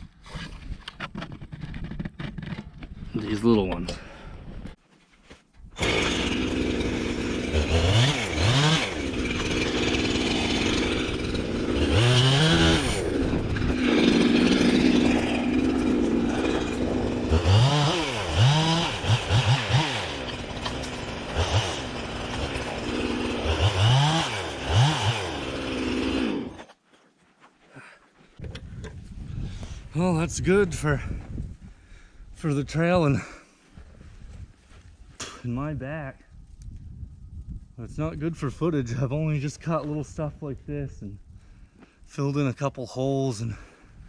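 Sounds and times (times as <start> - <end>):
chainsaw revving: 5.8 - 26.7.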